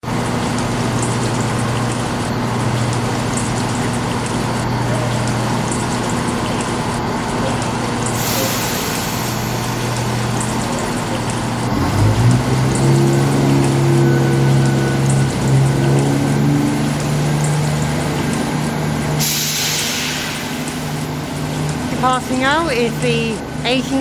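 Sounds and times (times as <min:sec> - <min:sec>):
diesel train engine idling: 0:00.0 - 0:24.0
constant hiss: 0:08.1 - 0:11.7, 0:13.8 - 0:24.0.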